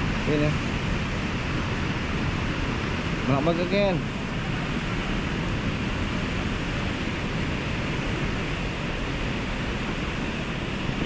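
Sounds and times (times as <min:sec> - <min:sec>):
water rushing over weir steps: 0:00.0 - 0:11.0.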